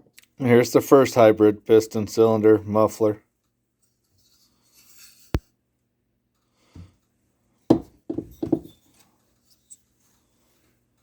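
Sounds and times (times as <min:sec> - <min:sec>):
metal parts knocking and clunking: 0:07.7 - 0:08.8.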